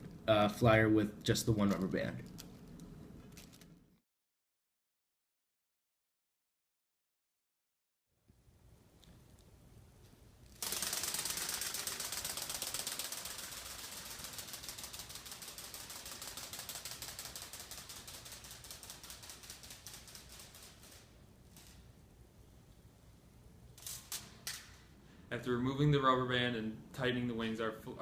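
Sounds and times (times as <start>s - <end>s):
toy bird wings clattering: 10.5s - 22.0s.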